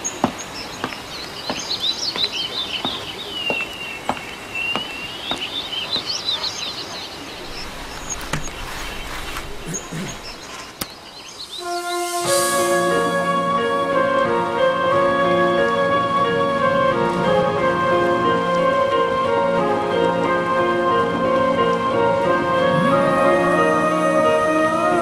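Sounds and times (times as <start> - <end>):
small birds chirping: 0.0 - 11.8
outdoor background hiss: 0.0 - 25.0.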